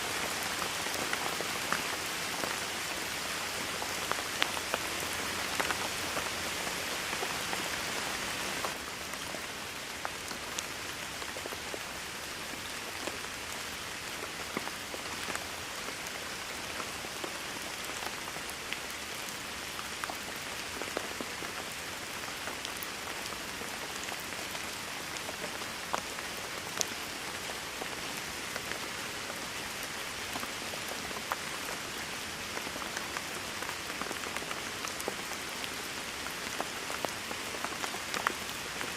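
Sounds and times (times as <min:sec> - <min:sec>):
raindrops ticking on a surface: 0:00.0 - 0:38.9
steady rain hiss: 0:00.0 - 0:38.9.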